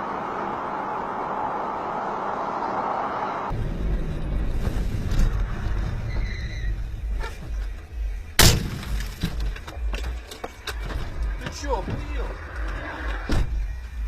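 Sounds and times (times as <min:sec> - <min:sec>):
car driving rumble: 0:00.0 - 0:14.0
car collision bang: 0:08.4 - 0:09.6.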